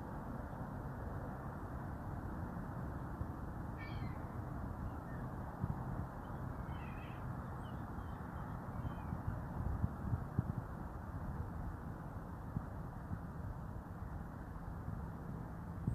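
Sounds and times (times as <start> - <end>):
low rush of background noise: 0.0 - 15.9
faint bird calls: 3.8 - 5.2, 6.2 - 9.2.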